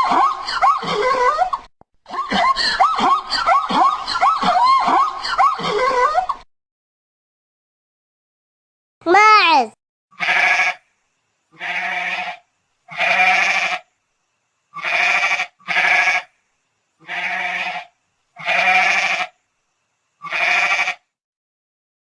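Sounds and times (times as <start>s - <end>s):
goat bleating: 10.2s - 10.8s, 11.6s - 13.8s, 14.8s - 16.2s, 17.0s - 17.8s, 18.4s - 19.3s, 20.2s - 21.0s.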